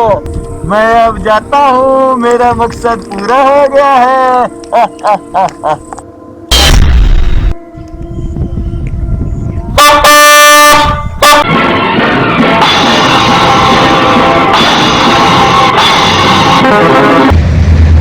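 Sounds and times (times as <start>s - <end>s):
deep boom: 6.5s - 7.6s, 17.3s - 18.0s
train horn blast: 7.5s - 17.4s
dramatic music with drums and guitar: 11.4s - 18.0s
low rumble: 17.3s - 18.0s.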